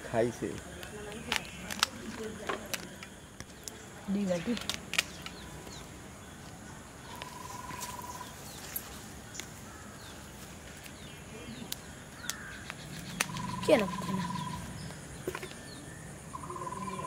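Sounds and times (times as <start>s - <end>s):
birds chirping: 0.0s - 17.0s
rapid bird trill: 7.1s - 8.5s, 12.2s - 17.0s.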